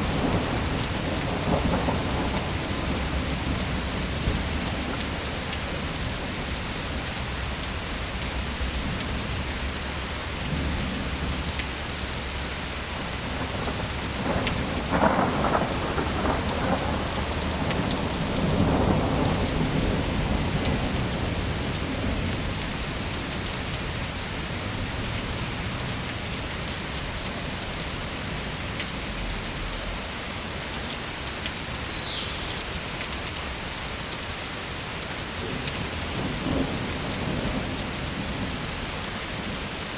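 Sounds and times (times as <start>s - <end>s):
low roll of thunder: 0.0s - 6.5s, 12.8s - 23.5s, 35.4s - 39.8s
heavy rain: 0.0s - 39.9s.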